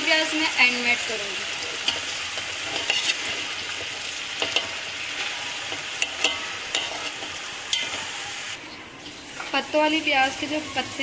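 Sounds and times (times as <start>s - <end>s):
hot oil sizzling: 0.0s - 11.0s
metal spatula scraping pot: 1.5s - 9.8s.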